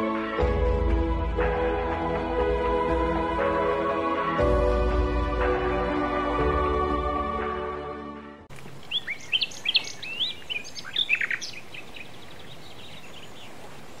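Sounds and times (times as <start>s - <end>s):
background music: 0.0s - 8.5s
birds chirping and calling: 8.6s - 14.0s.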